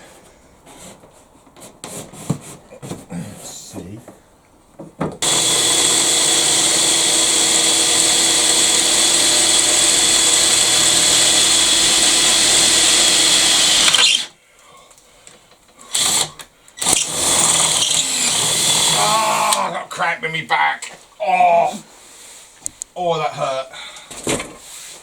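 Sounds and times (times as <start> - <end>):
power drill running: 5.2 - 14.3, 15.9 - 19.6.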